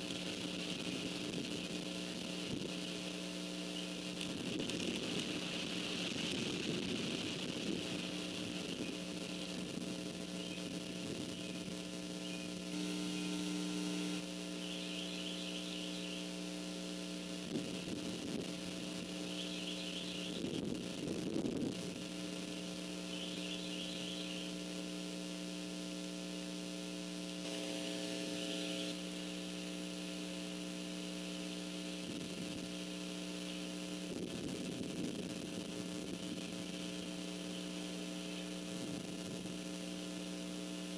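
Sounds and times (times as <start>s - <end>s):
electrical hum: 0.0s - 40.9s
faint high rapid chirping: 14.5s - 16.3s, 19.1s - 20.5s, 23.0s - 24.6s.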